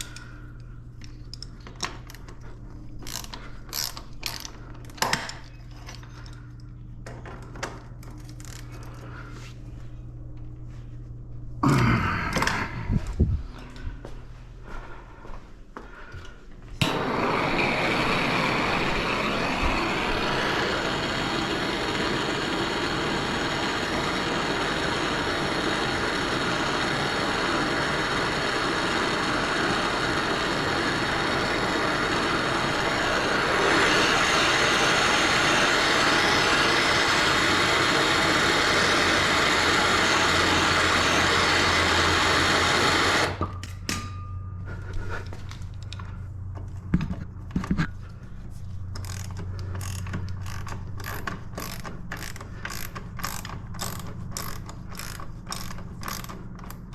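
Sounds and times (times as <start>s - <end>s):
power tool motor running: 16.8s - 43.5s, 49.0s - 56.9s.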